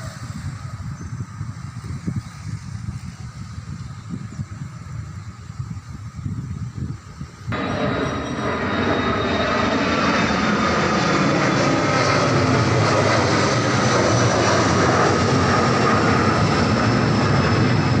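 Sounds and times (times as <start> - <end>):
airplane engines roaring overhead: 0.0 - 18.0.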